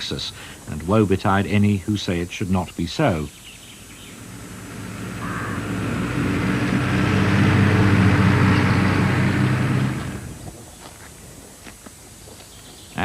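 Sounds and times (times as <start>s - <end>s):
vehicle engine passing by: 3.8s - 10.4s.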